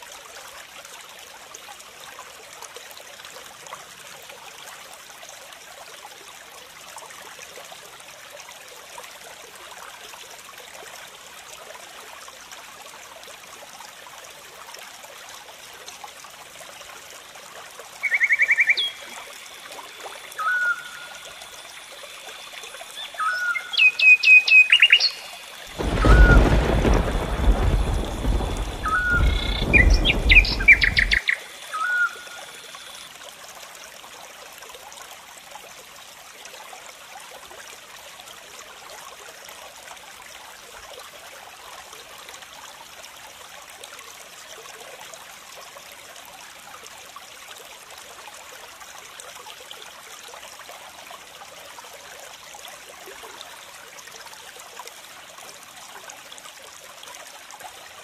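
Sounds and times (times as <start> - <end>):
flowing water hiss: 0.0 - 58.0
birds chirping: 28.3 - 32.2.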